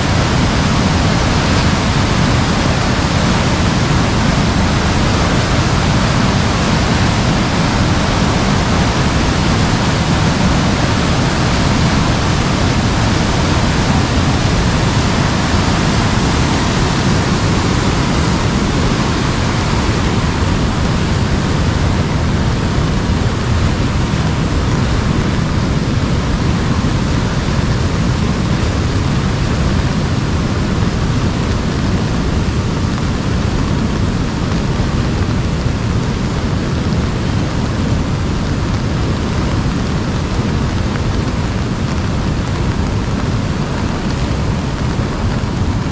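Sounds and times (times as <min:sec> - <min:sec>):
heavy rain on an umbrella: 0:00.0 - 0:45.9.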